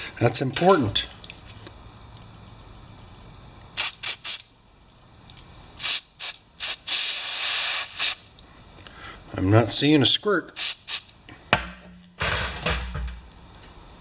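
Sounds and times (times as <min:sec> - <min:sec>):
aerosol spray hissing: 0:03.7 - 0:04.6, 0:05.8 - 0:08.4, 0:10.5 - 0:11.2.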